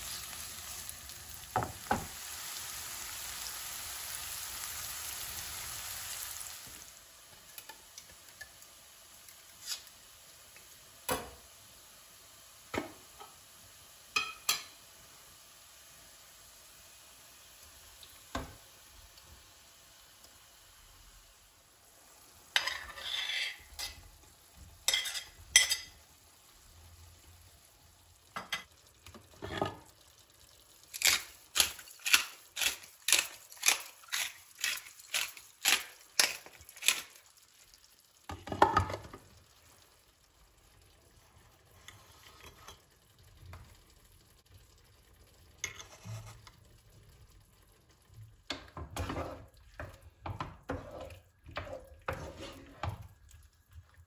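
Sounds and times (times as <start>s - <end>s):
utensil stirring in a pan: 22.3s - 26.1s, 30.8s - 39.9s, 40.6s - 43.7s, 45.6s - 46.7s, 47.5s - 54.0s
kitchen clatter and scraping: 22.5s - 24.2s, 24.8s - 26.0s, 28.3s - 29.9s, 30.9s - 37.2s, 38.3s - 39.2s, 41.8s - 43.0s, 45.6s - 46.6s, 48.5s - 53.2s.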